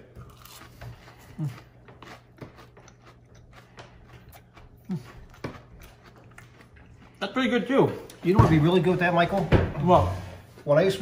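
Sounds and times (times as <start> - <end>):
person chewing: 0.0 - 7.4.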